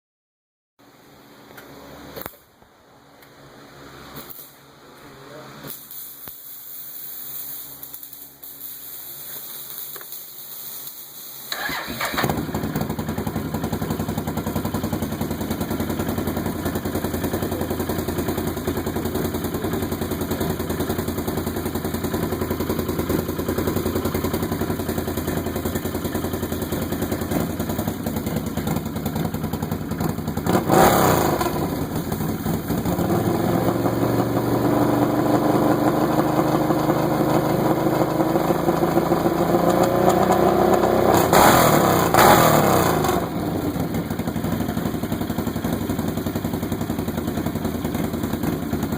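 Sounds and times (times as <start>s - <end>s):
atv engine idling: 11.5s - 48.9s.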